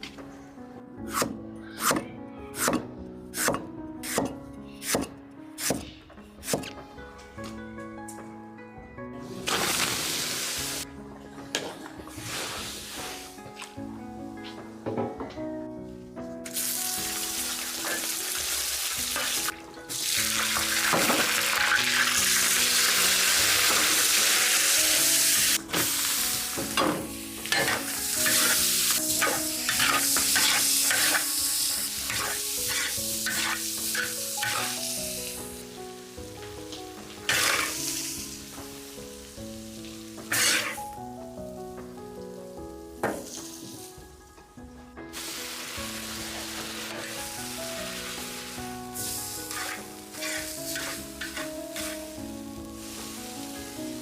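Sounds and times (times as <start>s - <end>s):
food sizzling in hot oil: 9.3s - 10.8s, 12.2s - 13.4s, 16.4s - 41.0s, 45.1s - 54.0s
spatula scraping pan: 27.5s - 28.6s, 29.2s - 31.3s, 32.1s - 34.8s, 37.3s - 37.8s, 40.3s - 40.8s, 49.4s - 52.1s.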